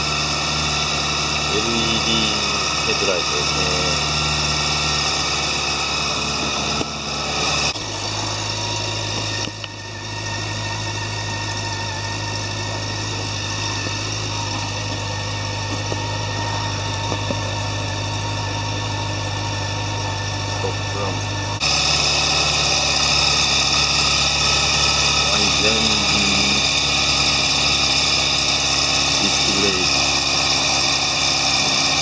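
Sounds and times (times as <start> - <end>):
motorcycle engine idling: 0.0 - 32.0.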